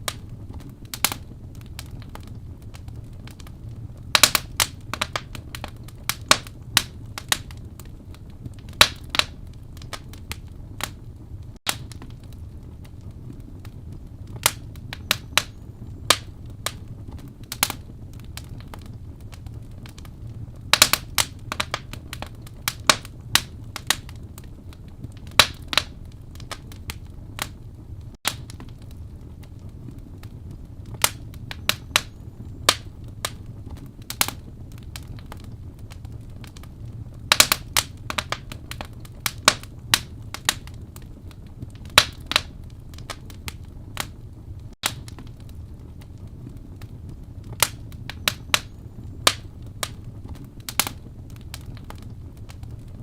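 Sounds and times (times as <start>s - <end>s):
fire crackling and popping: 0.0s - 53.0s
wood fire rumble: 0.0s - 53.0s.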